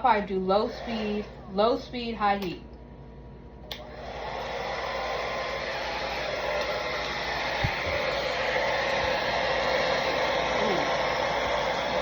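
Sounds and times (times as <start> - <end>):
blow dryer airy rush: 0.0 - 2.0, 3.7 - 12.0
blow dryer switch click: 3.7 - 3.9.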